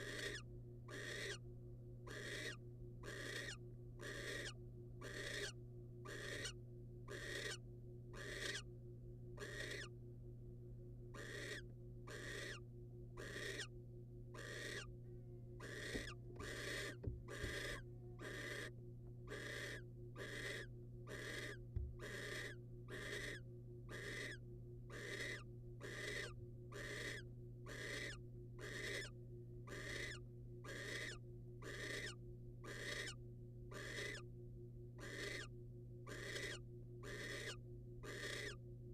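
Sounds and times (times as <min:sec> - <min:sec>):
owl hissing begging call: 0:00.0 - 0:01.4, 0:02.1 - 0:07.6, 0:08.2 - 0:08.7, 0:09.4 - 0:09.9, 0:11.2 - 0:12.6, 0:13.2 - 0:13.7, 0:14.4 - 0:14.9, 0:15.6 - 0:18.7, 0:19.3 - 0:29.1, 0:29.7 - 0:34.2, 0:35.0 - 0:35.5, 0:36.1 - 0:38.6
steady low hum: 0:00.0 - 0:38.9.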